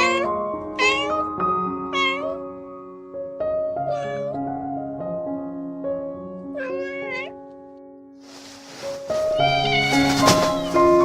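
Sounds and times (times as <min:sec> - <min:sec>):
cat meowing: 0:00.0 - 0:02.5, 0:03.8 - 0:04.4, 0:06.5 - 0:07.4
slow background music: 0:00.0 - 0:11.0.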